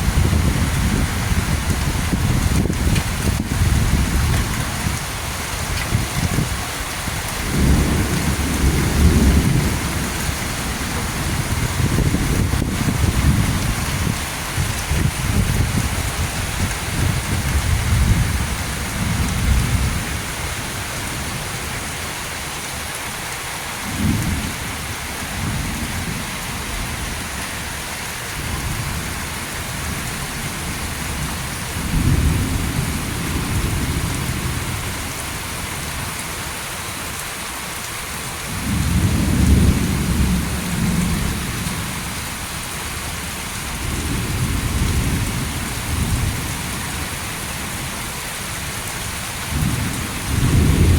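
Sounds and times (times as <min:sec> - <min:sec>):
rolling thunder: 0:00.0 - 0:20.3, 0:38.5 - 0:42.1, 0:49.5 - 0:50.9
heavy rain: 0:00.0 - 0:50.9.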